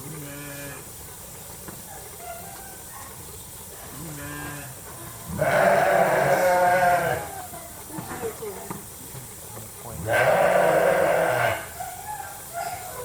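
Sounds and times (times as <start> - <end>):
sheep bleating: 4.0 - 7.4, 10.0 - 11.8.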